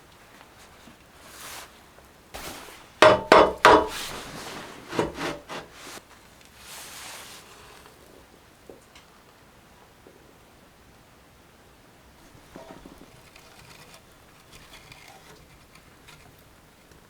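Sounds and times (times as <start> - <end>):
sharp knocks: 2.4 - 4.3
handling scraping: 2.4 - 7.5, 12.2 - 17.0.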